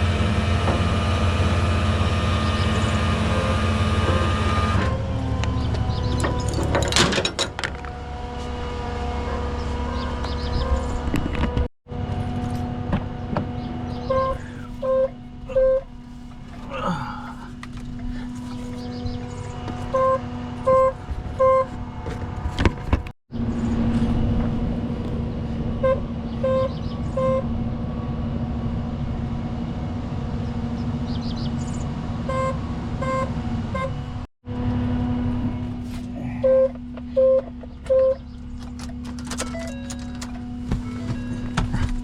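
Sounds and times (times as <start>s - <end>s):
truck engine running: 0.0s - 42.0s
car horn blasts: 13.5s - 16.0s, 18.6s - 22.0s, 25.7s - 27.7s, 32.2s - 34.2s, 36.4s - 38.2s.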